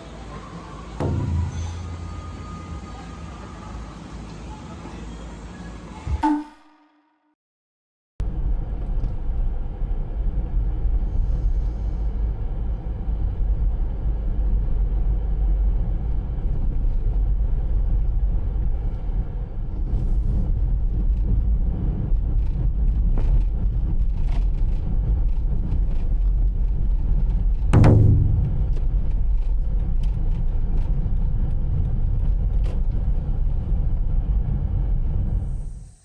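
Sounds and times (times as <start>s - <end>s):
vehicle rumble: 0.0s - 6.2s, 8.2s - 35.5s.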